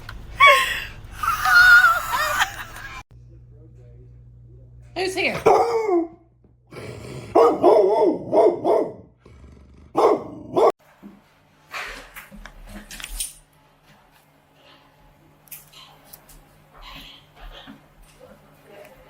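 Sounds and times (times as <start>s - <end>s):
dog barking: 5.4s - 6.2s, 7.3s - 9.1s, 9.9s - 10.8s.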